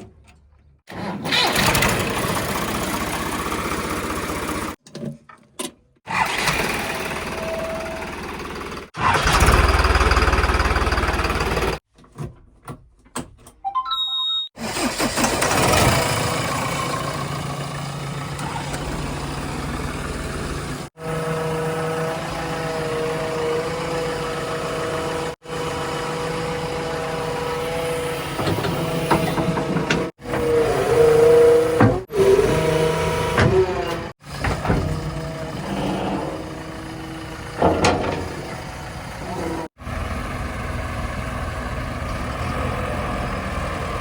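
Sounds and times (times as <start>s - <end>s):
heavy diesel engines revving: 6.1s - 11.8s, 14.6s - 44.0s.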